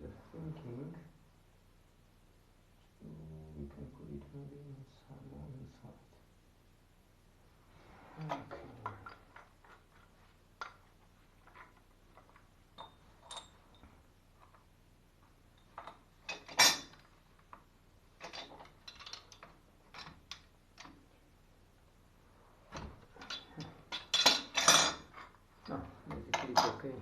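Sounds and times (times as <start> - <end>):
metallic clicks of plumbing fittings: 10.6 - 14.6, 18.2 - 21.0, 22.7 - 26.8.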